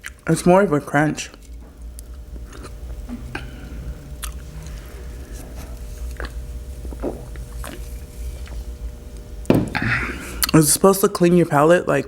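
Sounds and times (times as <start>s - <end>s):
person chewing crunchy food: 1.3s - 10.6s.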